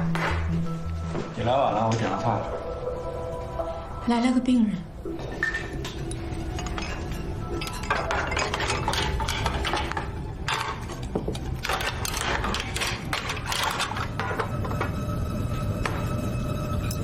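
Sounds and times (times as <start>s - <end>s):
restaurant background hum: 0.0s - 17.0s
dishes and utensils clinking: 5.1s - 15.1s.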